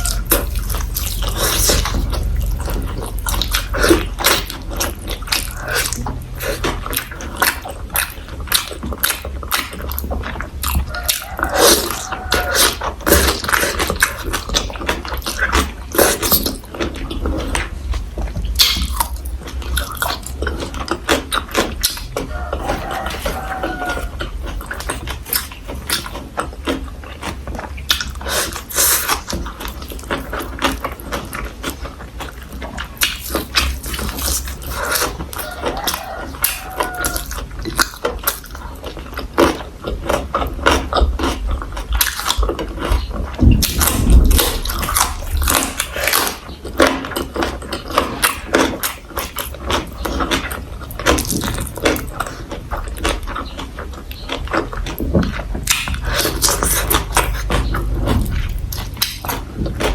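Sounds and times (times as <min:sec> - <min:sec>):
crunchy chewing: 0:00.0 - 0:59.9
low rumble: 0:42.5 - 0:46.5
wet mouth clicks: 0:55.6 - 0:59.9.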